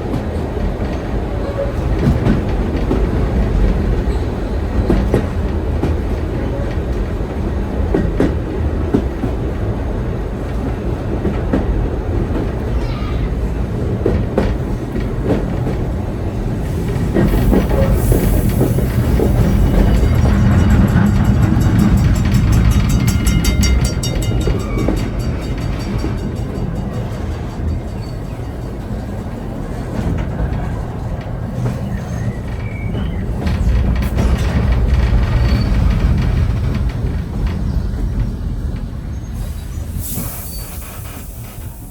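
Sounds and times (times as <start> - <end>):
steam train rumbling: 0.0 - 41.9
wheels clicking over rails: 13.8 - 39.4
high steam hiss: 16.6 - 20.3, 39.4 - 41.9.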